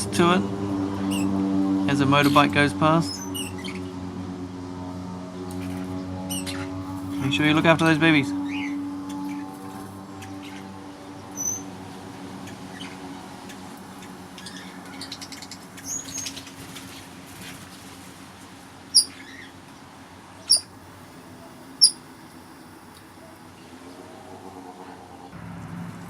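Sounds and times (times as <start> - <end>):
steady low hum: 0.0 - 18.9
parrots chirping: 1.0 - 1.3, 2.2 - 3.9, 6.3 - 7.6, 8.4 - 11.7, 12.4 - 17.0, 18.9 - 19.6, 20.4 - 24.0.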